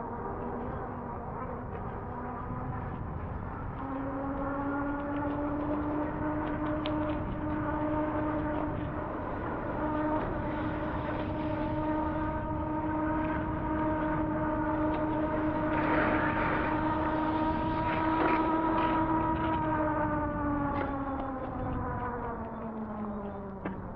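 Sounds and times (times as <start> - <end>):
electric motor whine: 0.0 - 23.8
tyres and wind on wet road: 3.8 - 22.9.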